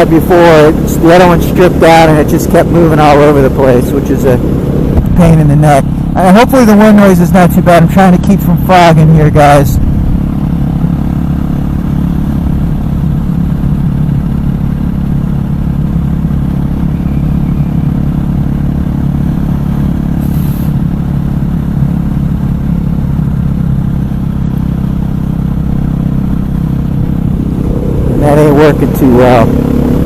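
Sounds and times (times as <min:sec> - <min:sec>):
motorcycle engine cruising: 0:00.0 - 0:30.0
wind noise on microphone: 0:04.4 - 0:05.2.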